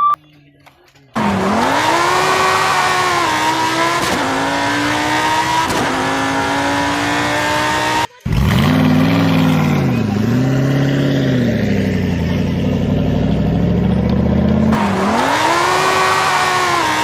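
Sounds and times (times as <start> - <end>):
car engine revving: 1.2 - 17.0
engine sound: 1.2 - 17.0.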